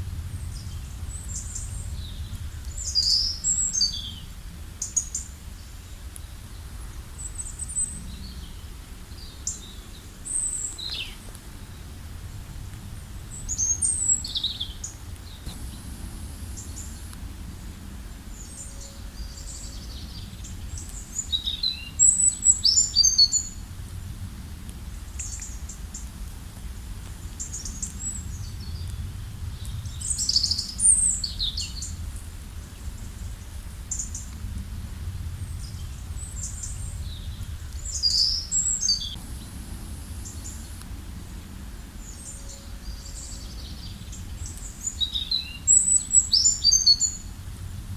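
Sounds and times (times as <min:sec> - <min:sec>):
small birds chirping and trilling: 0:00.4 - 0:11.8, 0:35.5 - 0:47.3.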